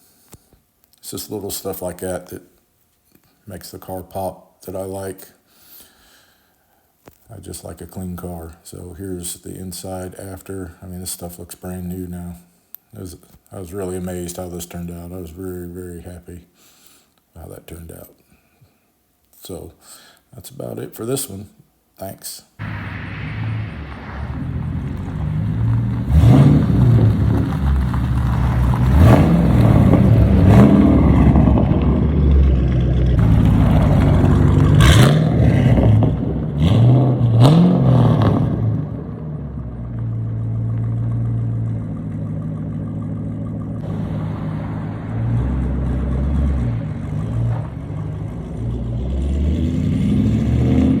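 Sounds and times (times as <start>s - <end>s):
car engine revving and idling: 22.6s - 51.0s.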